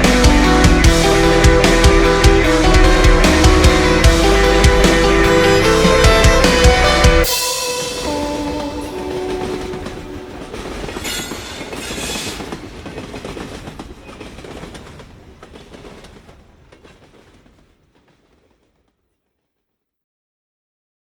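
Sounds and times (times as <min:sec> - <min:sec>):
high hiss: 0:00.0 - 0:12.8
train wheels clacking on rails: 0:00.0 - 0:18.6.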